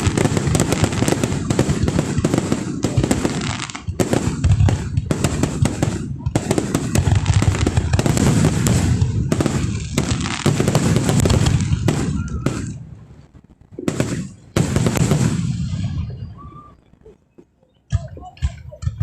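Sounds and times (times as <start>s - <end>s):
deep rumble of fireworks: 0.0s - 19.0s
fireworks bursting and crackling: 0.0s - 19.0s.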